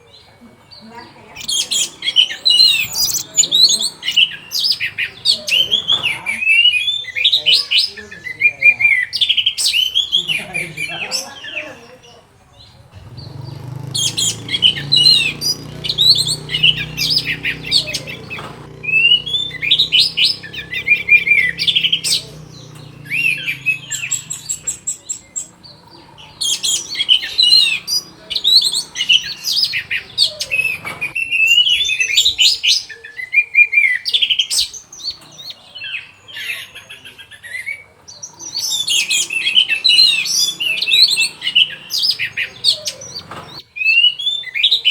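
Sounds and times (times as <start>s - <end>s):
thrush singing: 0.9s - 11.9s, 12.6s - 32.9s.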